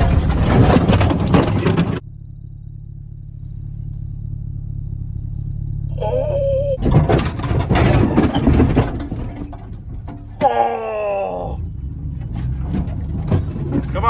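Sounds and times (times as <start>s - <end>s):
truck crashing through brush: 0.0s - 2.0s, 6.8s - 14.0s
short high squeal: 5.9s - 6.8s.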